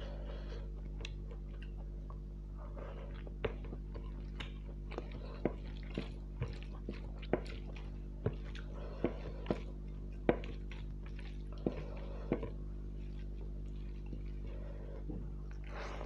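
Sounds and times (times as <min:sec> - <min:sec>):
low electrical hum: 0:00.0 - 0:16.0
person eating with lip smacks: 0:00.8 - 0:02.3, 0:03.1 - 0:14.4.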